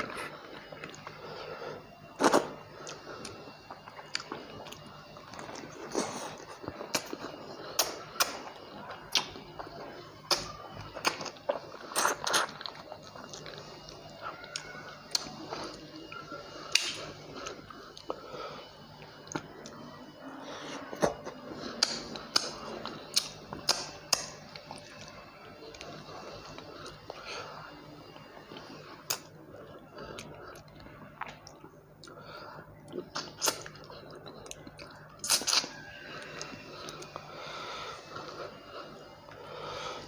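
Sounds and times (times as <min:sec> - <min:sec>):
person chewing food: 0:00.0 - 0:40.0
mouth smacks and clicks: 0:21.0 - 0:24.4, 0:33.1 - 0:35.7.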